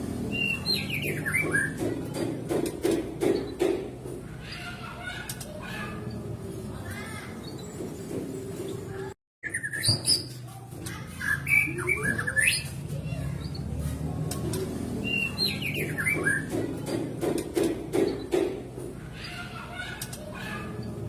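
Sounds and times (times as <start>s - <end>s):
low rapidly repeated bird calls: 0.1s - 6.3s, 14.8s - 21.0s
bird whistles and chirps: 9.4s - 10.4s.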